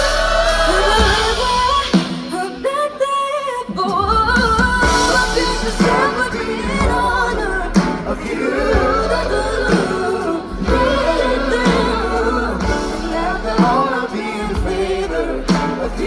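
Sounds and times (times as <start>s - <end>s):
person singing: 0.0s - 16.0s
drums hitting: 0.5s - 2.8s, 3.8s - 16.0s
rock band playing: 3.8s - 16.0s.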